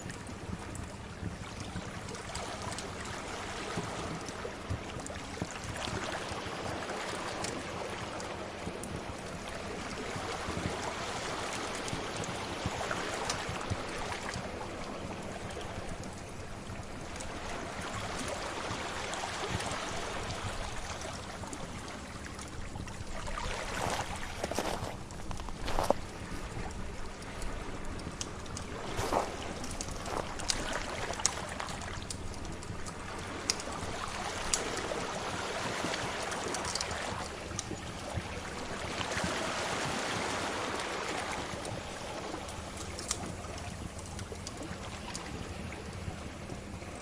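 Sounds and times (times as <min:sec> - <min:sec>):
sea waves washing: 0:02.1 - 0:47.0
fire crackling: 0:19.1 - 0:35.2, 0:41.2 - 0:45.8.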